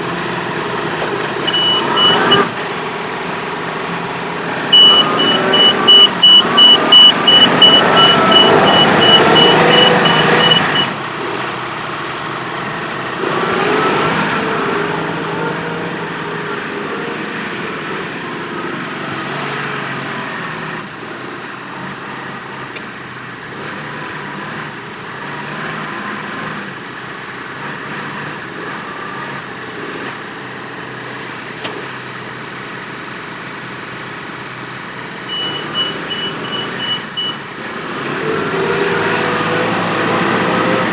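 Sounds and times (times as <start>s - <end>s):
tractor diesel engine under load: 0.0s - 40.9s
rapid high beeping: 1.4s - 2.5s, 4.7s - 11.0s.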